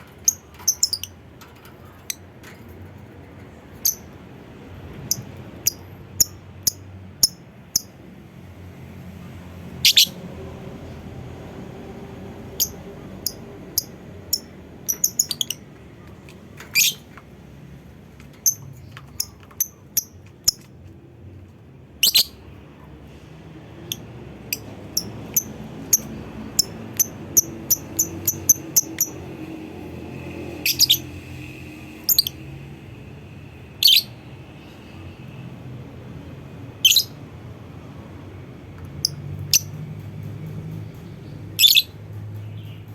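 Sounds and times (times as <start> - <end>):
lovebird chirping: 0.2 - 1.1, 3.8 - 4.1, 9.8 - 10.2, 12.5 - 15.7, 16.7 - 17.1, 22.0 - 22.5, 30.6 - 31.1, 33.8 - 34.2, 36.8 - 37.2, 41.6 - 42.0.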